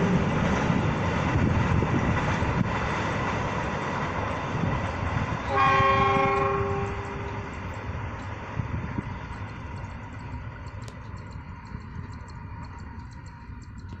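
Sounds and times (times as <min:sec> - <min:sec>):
train rumbling on rails: 0:00.0 - 0:14.0
train horn: 0:05.4 - 0:07.6.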